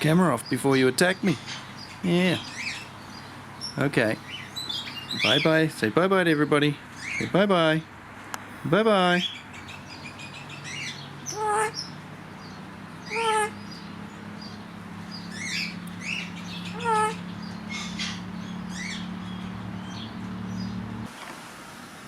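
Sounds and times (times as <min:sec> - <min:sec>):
parrots squawking: 0:00.4 - 0:05.7, 0:06.9 - 0:07.4, 0:09.0 - 0:20.8
steady low hum: 0:08.4 - 0:21.1.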